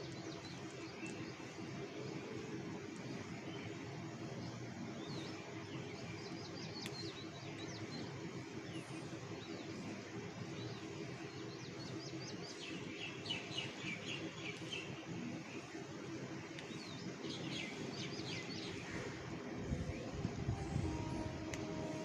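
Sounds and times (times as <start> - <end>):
flock of birds chirping: 0.0 - 22.0
low background din: 14.2 - 22.0.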